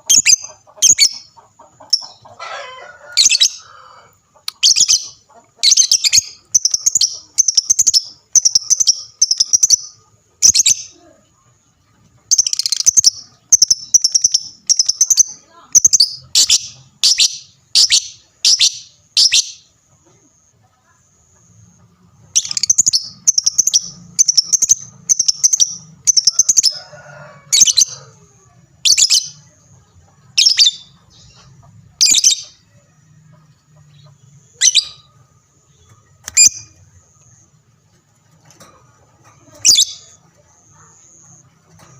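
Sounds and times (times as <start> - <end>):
bird chirping shrilly: 12.4 - 19.7, 34.5 - 35.1.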